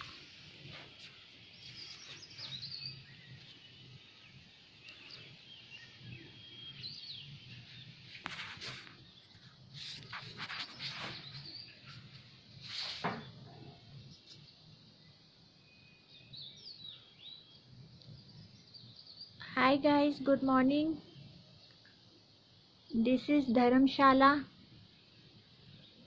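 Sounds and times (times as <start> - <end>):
birds chirping faintly: 0.0 - 26.0
fingers rustling on phone: 8.1 - 11.6.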